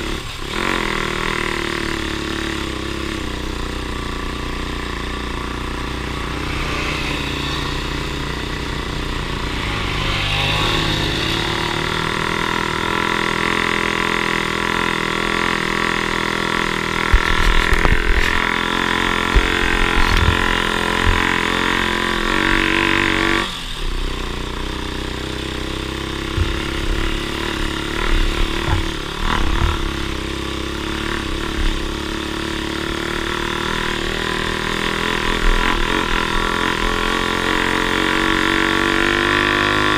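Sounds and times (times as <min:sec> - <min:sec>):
off-road vehicle engine running: 0:00.0 - 0:39.9
low thumps: 0:26.2 - 0:30.1.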